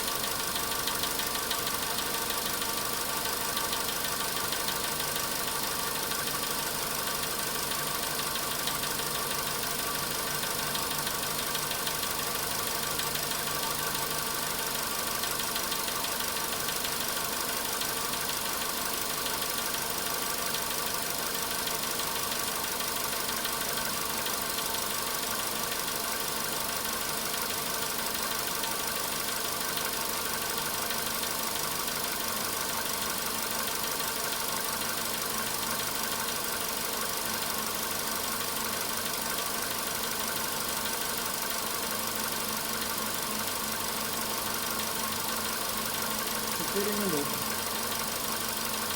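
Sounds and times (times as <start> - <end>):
car engine idling with knock: 0.0 - 46.7.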